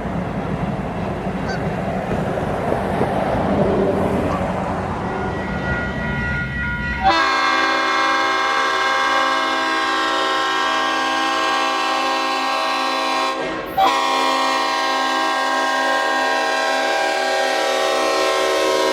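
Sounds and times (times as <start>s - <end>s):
low train rumble: 0.0s - 18.9s
locomotive horn blasts: 5.0s - 18.9s.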